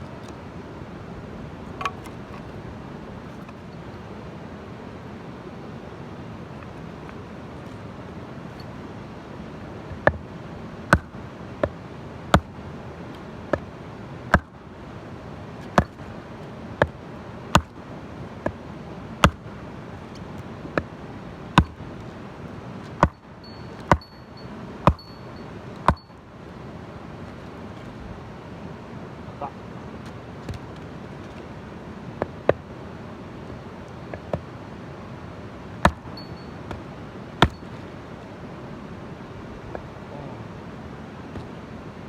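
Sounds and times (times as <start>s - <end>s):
sharp hard knocks: 9.9s - 10.3s, 10.9s - 11.8s, 14.3s - 14.6s, 15.6s - 16.1s, 17.6s - 17.8s, 19.2s - 19.5s, 21.6s - 21.8s, 23.0s - 23.2s, 23.8s - 24.2s, 24.8s - 25.2s, 25.8s - 26.1s, 35.8s - 37.7s.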